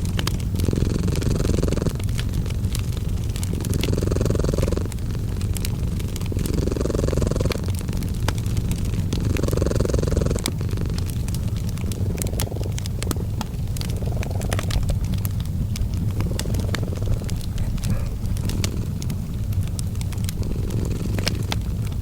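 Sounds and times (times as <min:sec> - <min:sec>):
cat purring: 0:00.0 - 0:22.0
wood fire crackling and popping: 0:00.0 - 0:22.0.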